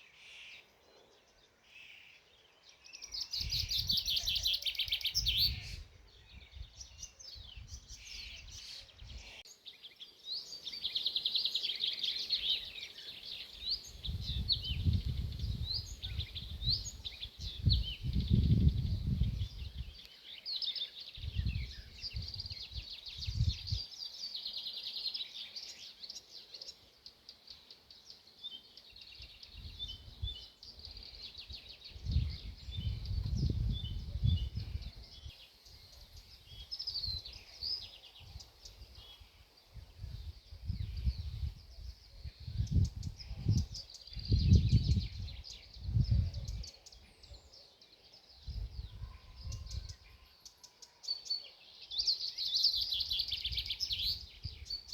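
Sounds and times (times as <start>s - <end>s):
songbirds singing and chirping: 0.0s - 54.9s.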